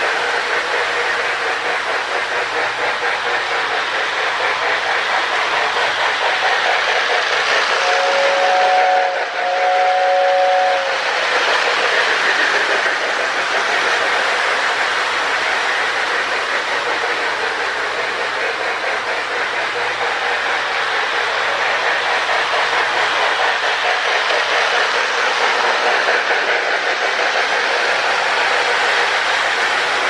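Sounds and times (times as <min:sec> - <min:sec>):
toy train rumbling on track: 0:00.0 - 0:30.0
toy train air whistle: 0:04.2 - 0:12.9.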